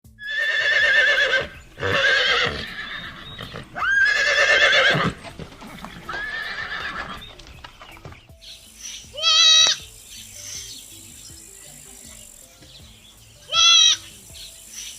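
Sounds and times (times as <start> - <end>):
horse whinnying: 0.2 - 7.3.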